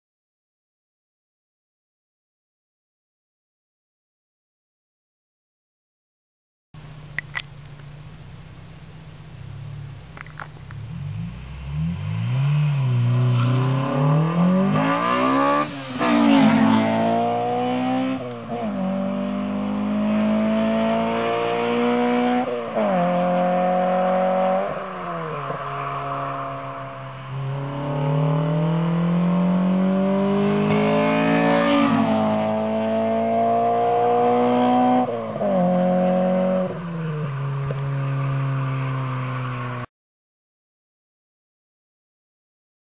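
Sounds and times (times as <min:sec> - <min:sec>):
car engine accelerating hard: 0:10.6 - 0:39.8.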